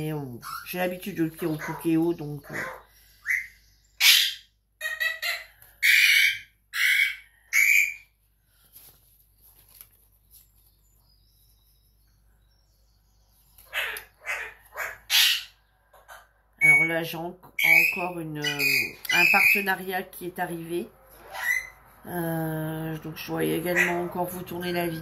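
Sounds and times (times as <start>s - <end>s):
bird calling: 13.5s - 19.8s.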